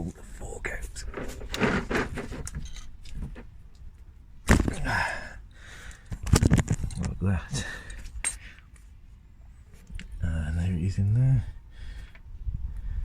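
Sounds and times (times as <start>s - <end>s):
tool scraping in tyre: 1.0s - 3.4s.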